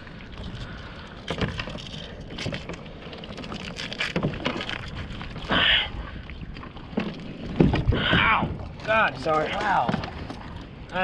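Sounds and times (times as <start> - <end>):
knocks and clatter on kayak: 1.2 - 5.4, 6.6 - 10.6.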